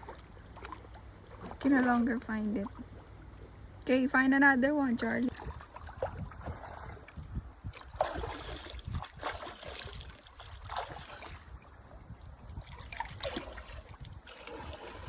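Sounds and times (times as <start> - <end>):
river water splashing: 0.0 - 4.1, 5.0 - 15.0
wind rumble on microphone: 5.3 - 15.0.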